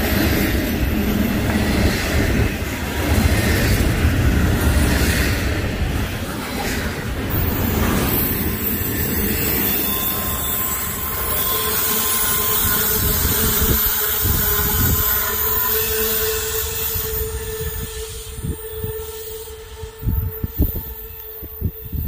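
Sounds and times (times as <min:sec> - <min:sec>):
train wheels rumbling on rail: 0:00.0 - 0:22.0
wheel squeal: 0:07.3 - 0:22.0.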